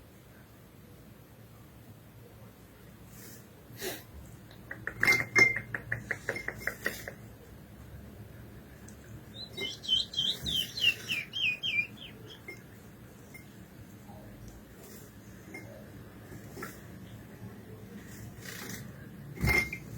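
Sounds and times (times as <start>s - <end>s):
finch singing whistled notes: 9.3s - 12.6s
sharp ticking bird chirps: 9.3s - 12.6s.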